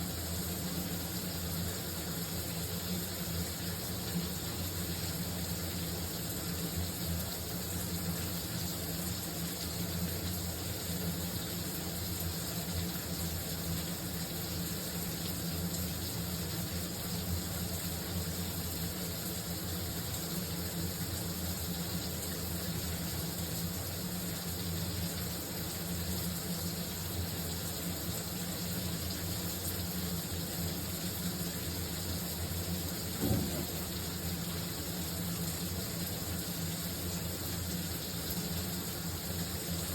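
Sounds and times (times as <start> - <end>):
shower water spraying: 27.8 - 39.9
dull bump: 33.2 - 33.9.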